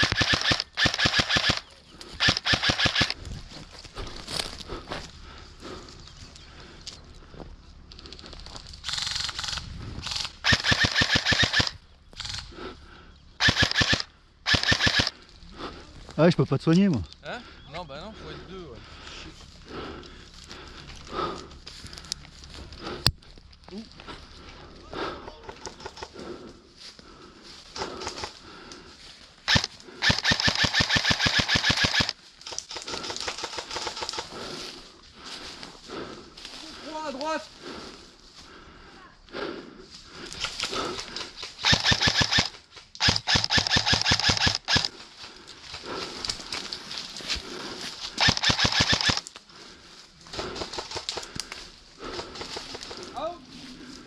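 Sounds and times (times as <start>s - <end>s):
airsoft rifle bursts: 0.0s - 3.2s, 8.8s - 12.5s, 13.4s - 15.1s, 29.5s - 34.3s, 40.4s - 45.0s, 48.2s - 49.3s.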